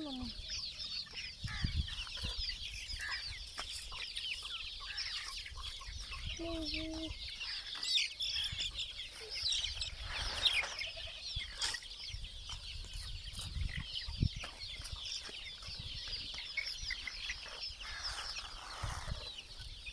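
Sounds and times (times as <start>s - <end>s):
chickens clucking: 0.0s - 19.9s.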